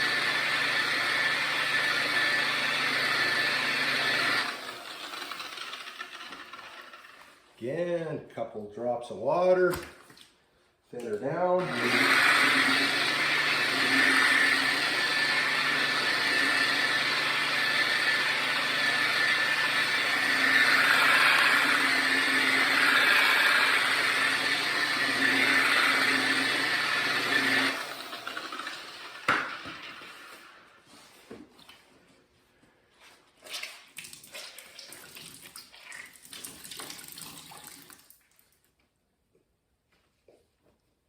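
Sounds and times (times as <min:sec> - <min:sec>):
electric polisher running: 0:00.0 - 0:07.2, 0:11.6 - 0:30.5.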